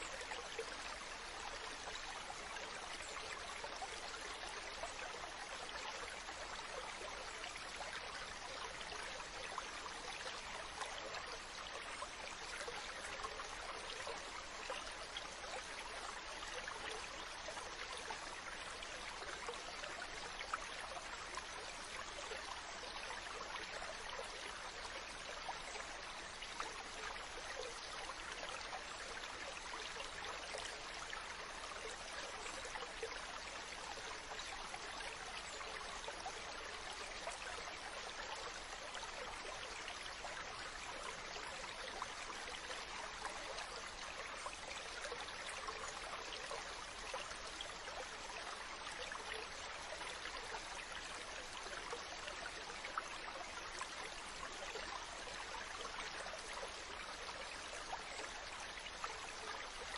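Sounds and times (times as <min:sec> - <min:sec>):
stream running over rocks: 0:00.0 - 0:59.9.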